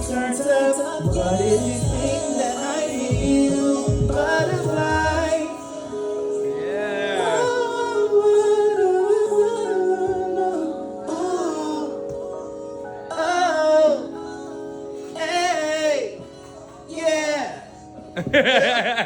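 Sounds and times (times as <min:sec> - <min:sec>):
heavy low bass: 0:01.1 - 0:02.2, 0:03.1 - 0:05.4.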